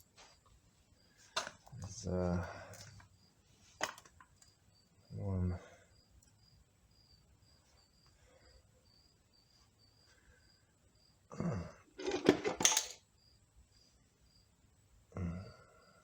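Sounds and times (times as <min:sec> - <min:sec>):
person grunting: 0:11.3 - 0:11.9, 0:15.1 - 0:15.6
metal parts clattering: 0:12.0 - 0:13.0.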